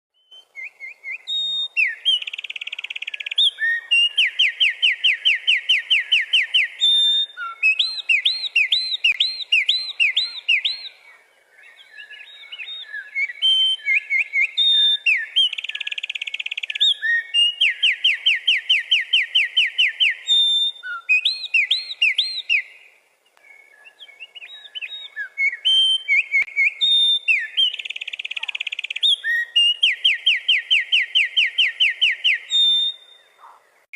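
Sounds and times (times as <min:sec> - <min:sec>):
wren singing trills: 0:00.1 - 0:33.6.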